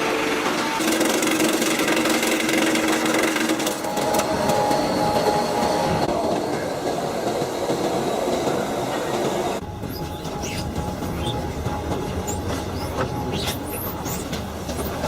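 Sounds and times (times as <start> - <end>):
sawmill machinery rattling: 0.5 - 4.8.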